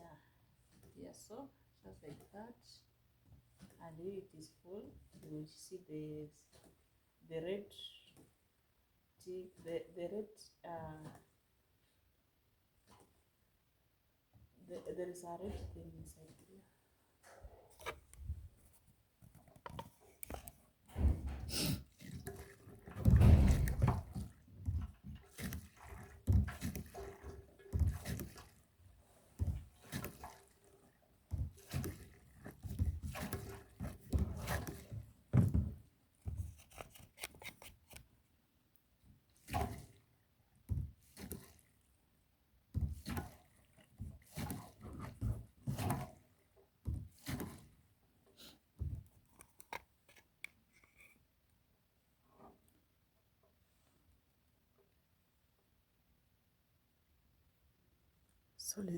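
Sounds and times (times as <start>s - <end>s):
hand pump thunks: 19.6s - 28.6s, 29.3s - 37.6s.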